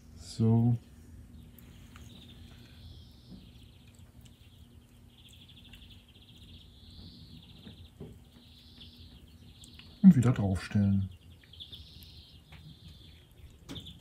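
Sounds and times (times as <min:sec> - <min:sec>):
low steady hum: 0:00.0 - 0:14.0
small bird singing: 0:00.2 - 0:14.0.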